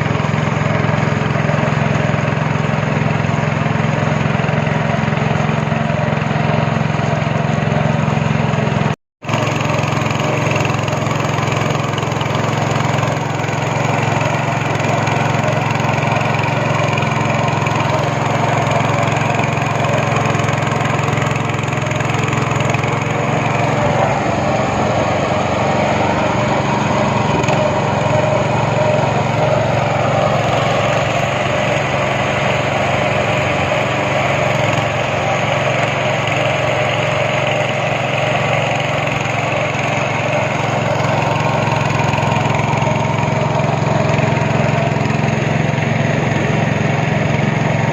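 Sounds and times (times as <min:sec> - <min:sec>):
speedboat engine humming: 0:00.0 - 0:47.9
rushing water noise: 0:09.2 - 0:47.9.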